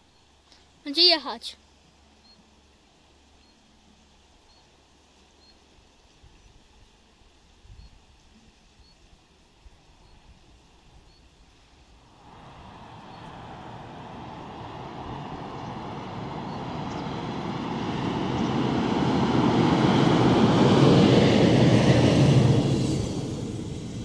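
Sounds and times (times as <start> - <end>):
train wheels rumbling on rails: 12.1 - 24.0.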